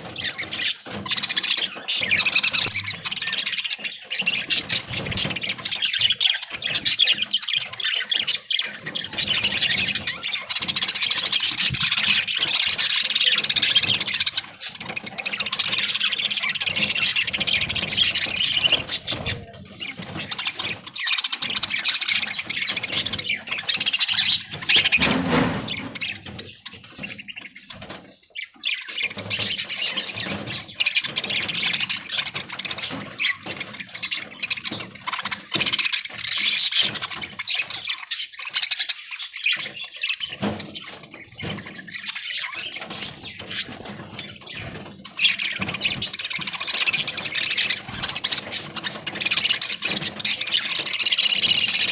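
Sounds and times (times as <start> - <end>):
budgerigars chattering and chirping: 0.0 - 51.9.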